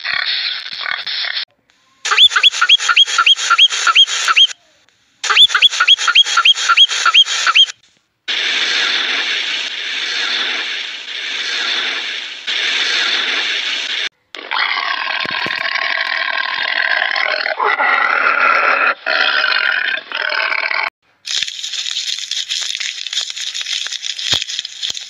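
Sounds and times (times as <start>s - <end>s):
animal chirping: 2.0s - 4.6s, 5.2s - 7.7s
steady hiss: 8.3s - 14.1s.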